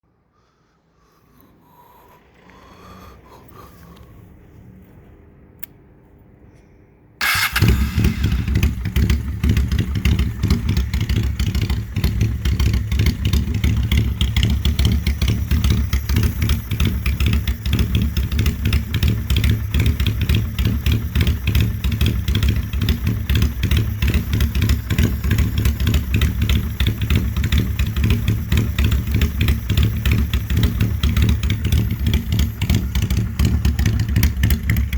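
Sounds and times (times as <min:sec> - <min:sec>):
small click: 0:05.6 - 0:05.8
motorcycle engine idling: 0:07.2 - 0:34.9.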